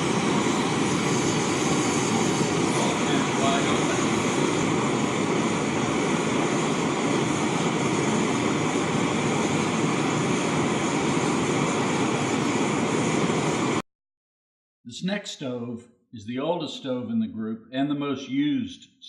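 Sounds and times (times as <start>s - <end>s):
stove burner hissing: 0.0s - 13.8s.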